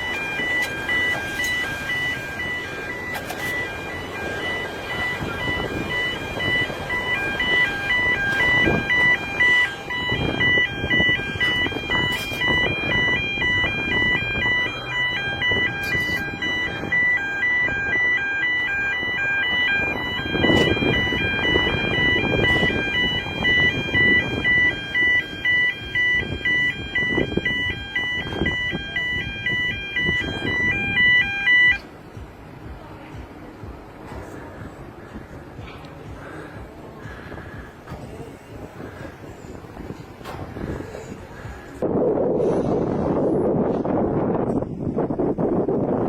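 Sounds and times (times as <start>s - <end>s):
two-tone electronic warning alarm: 0.0s - 31.9s.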